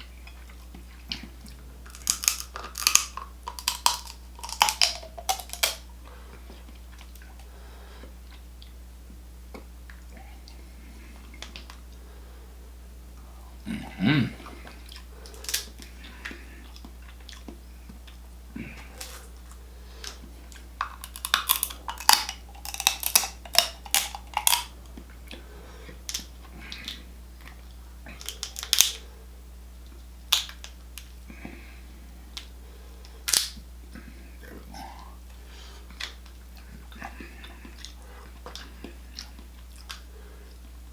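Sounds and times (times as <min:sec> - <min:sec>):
seafood shells cracking: 0:01.8 - 0:06.0, 0:15.3 - 0:16.0, 0:18.9 - 0:24.8, 0:26.0 - 0:27.0, 0:28.1 - 0:29.0, 0:30.3 - 0:31.2, 0:33.3 - 0:33.6
short vocal sound: 0:13.6 - 0:14.8.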